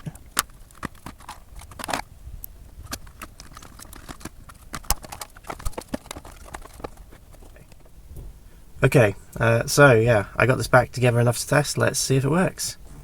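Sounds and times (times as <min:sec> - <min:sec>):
plastic parts clicking and knocking: 0:00.0 - 0:02.1, 0:02.7 - 0:07.9.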